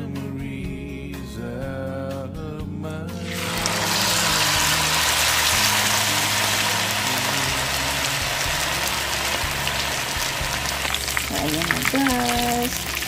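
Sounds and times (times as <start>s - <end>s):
chicken deep-frying in oil: 3.2s - 13.0s.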